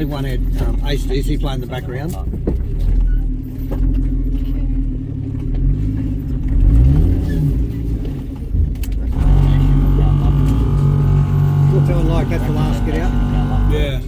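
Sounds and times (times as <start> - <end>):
engine revving under load: 5.6 - 14.0.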